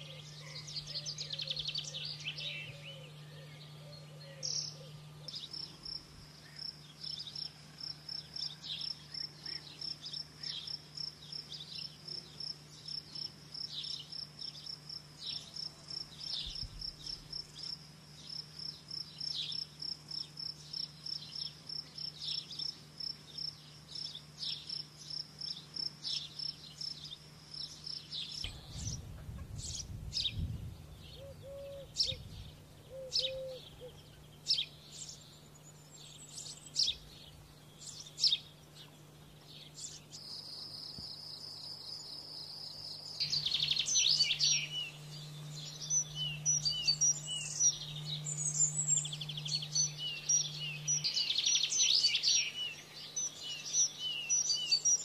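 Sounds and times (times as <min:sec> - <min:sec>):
canary singing: 0:00.0 - 0:07.6, 0:31.2 - 0:40.2, 0:43.0 - 0:55.0
low steady hum: 0:00.0 - 0:55.0.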